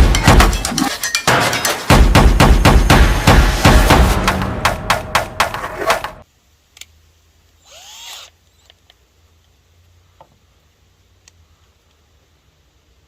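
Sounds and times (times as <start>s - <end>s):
hammer blows on wooden boards: 0.0s - 6.2s.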